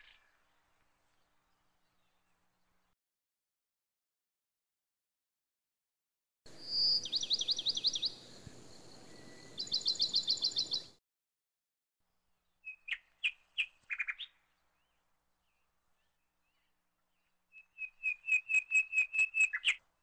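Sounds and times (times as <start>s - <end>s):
bird singing trilled phrases: 6.6s - 8.2s, 9.1s - 11.0s, 12.6s - 16.7s, 17.5s - 19.8s.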